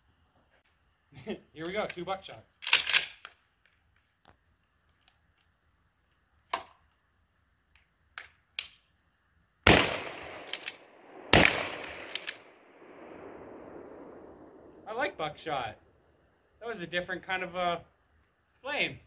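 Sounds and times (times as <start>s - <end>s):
shotgun blasts echoing: 9.7s - 14.2s.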